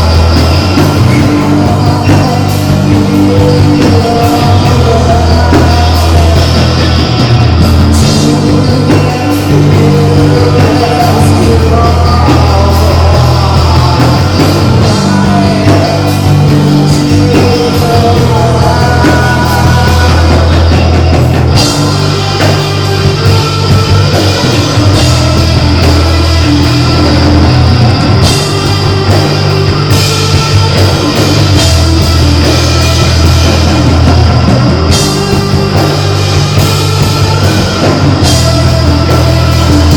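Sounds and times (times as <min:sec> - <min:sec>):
deep bass line: 0:00.0 - 0:39.9
distorted guitar: 0:00.0 - 0:39.9
drum kit: 0:00.0 - 0:39.9.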